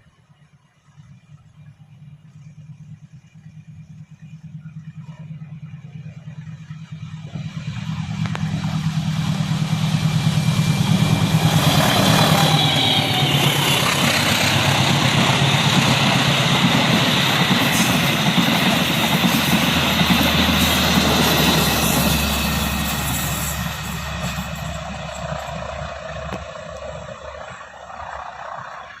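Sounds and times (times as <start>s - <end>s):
locomotive engine hum: 0.0s - 29.0s
train carriages rumbling on rails: 6.7s - 29.0s.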